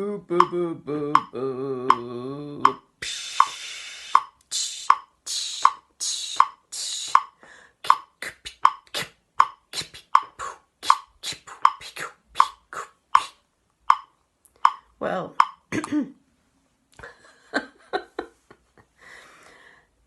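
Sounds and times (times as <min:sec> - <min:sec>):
metronome ticking: 0:00.3 - 0:15.7
tongue clicks and pops: 0:00.3 - 0:15.7
hissing breath noises: 0:03.0 - 0:08.5.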